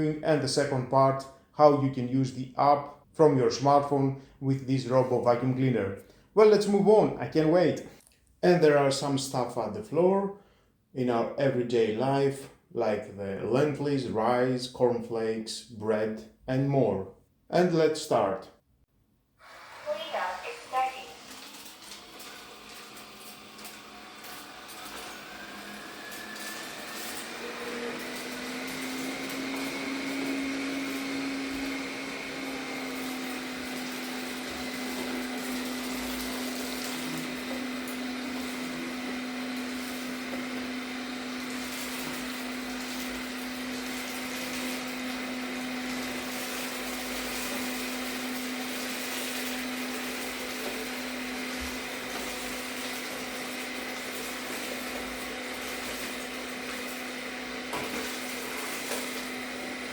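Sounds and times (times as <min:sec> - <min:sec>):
robot vacuum motor whine: 0:19.4 - 0:59.9.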